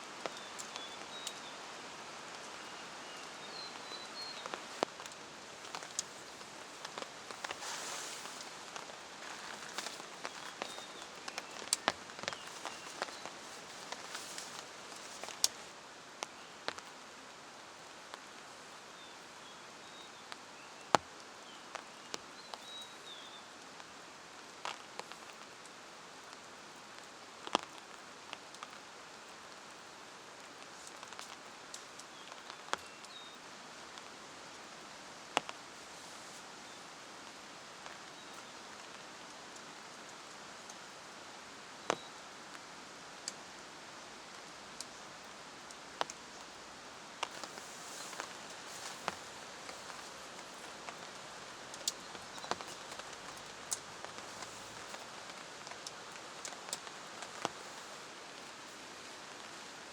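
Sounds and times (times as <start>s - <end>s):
rain hiss: 0.0s - 59.9s.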